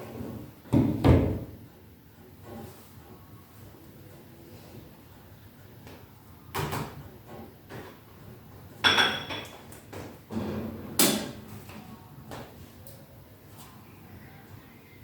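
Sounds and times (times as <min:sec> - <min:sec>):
dishes and utensils clattering: 0:08.8 - 0:11.4.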